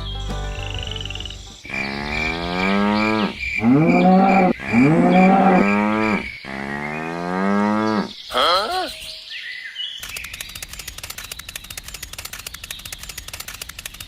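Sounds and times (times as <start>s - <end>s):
cow mooing: 1.7s - 8.2s.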